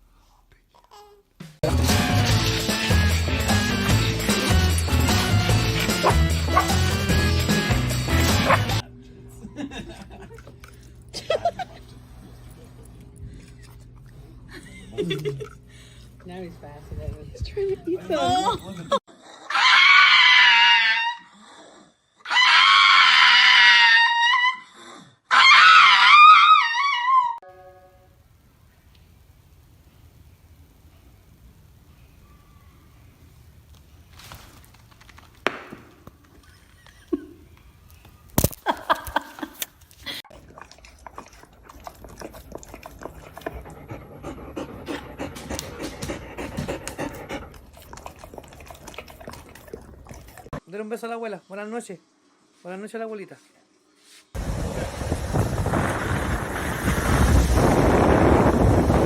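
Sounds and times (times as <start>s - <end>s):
animal screaming cries: 19.5s - 21.4s, 22.2s - 24.7s, 25.3s - 27.4s
dog panting: 40.3s - 50.6s.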